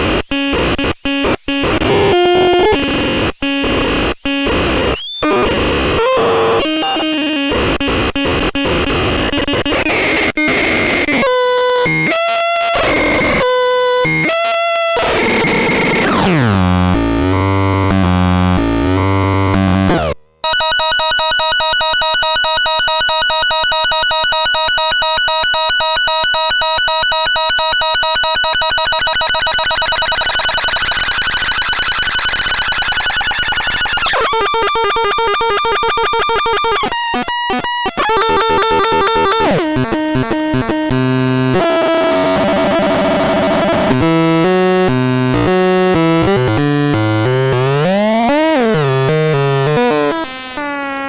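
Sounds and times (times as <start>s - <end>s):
harsh buzzy synthesizer tones: 0.0s - 23.4s, 27.3s - 51.0s.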